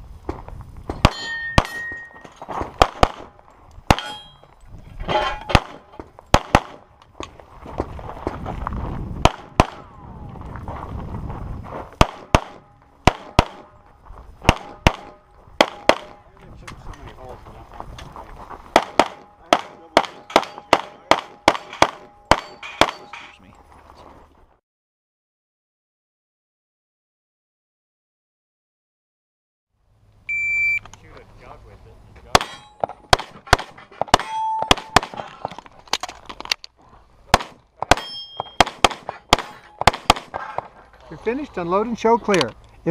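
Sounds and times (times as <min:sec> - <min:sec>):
metallic ring: 0:01.1 - 0:02.4, 0:04.0 - 0:05.6, 0:21.7 - 0:23.4, 0:32.4 - 0:33.1, 0:34.1 - 0:35.0, 0:38.0 - 0:38.6
pistol shots: 0:02.8 - 0:04.2, 0:05.5 - 0:06.9, 0:09.2 - 0:09.9, 0:12.0 - 0:13.8, 0:14.4 - 0:16.2, 0:18.7 - 0:23.1, 0:32.3 - 0:35.4, 0:37.3 - 0:40.4
shot timer beep: 0:30.3 - 0:30.9.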